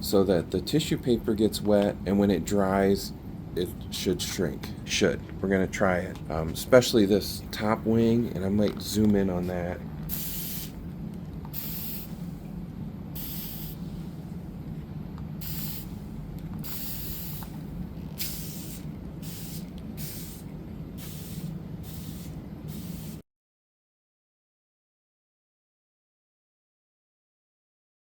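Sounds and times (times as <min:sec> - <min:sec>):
steady low hum: 0:00.0 - 0:23.2
spray bottle hissing bursts: 0:10.1 - 0:10.8, 0:11.5 - 0:12.2, 0:13.2 - 0:13.8, 0:15.4 - 0:16.0, 0:16.6 - 0:17.5, 0:18.2 - 0:20.4, 0:21.0 - 0:23.2.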